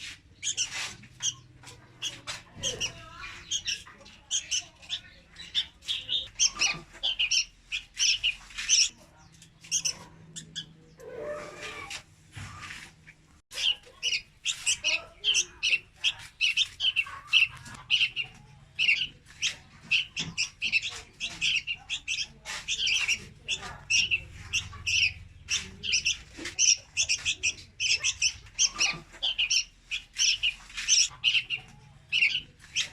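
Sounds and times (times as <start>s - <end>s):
birds chirping rapidly: 0.0s - 32.9s.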